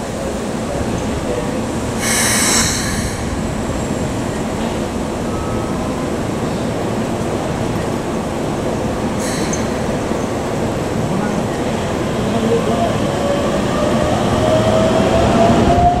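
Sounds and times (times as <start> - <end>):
electric train rumbling on rails: 0.0 - 16.0.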